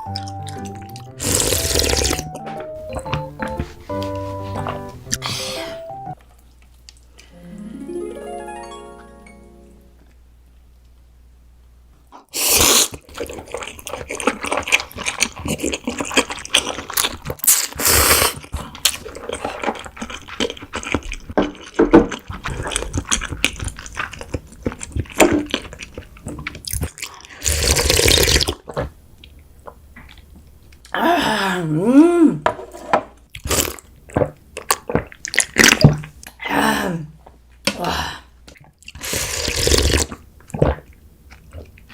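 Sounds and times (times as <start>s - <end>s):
wet chewing: 0.0s - 5.5s, 12.4s - 30.9s, 33.2s - 36.4s, 38.4s - 41.9s
slurping noodles: 0.6s - 2.3s, 12.3s - 21.0s, 22.2s - 28.9s, 32.6s - 33.8s, 38.9s - 40.8s.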